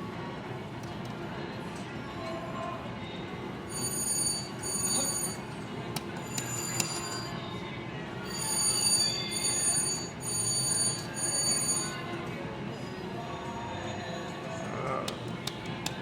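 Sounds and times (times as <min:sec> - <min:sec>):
slot machine bell-like ring: 0:03.6 - 0:07.5, 0:08.2 - 0:12.2.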